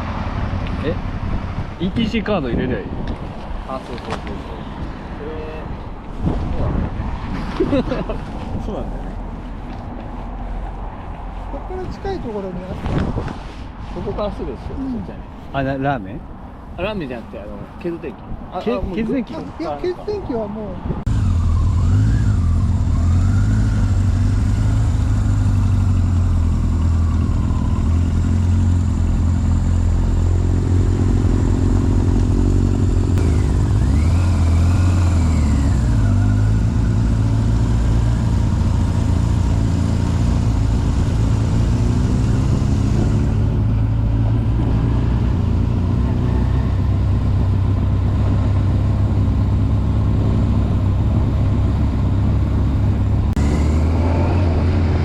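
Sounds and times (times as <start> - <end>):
motorcycle engine running: 21.1 - 44.3, 45.4 - 54.6.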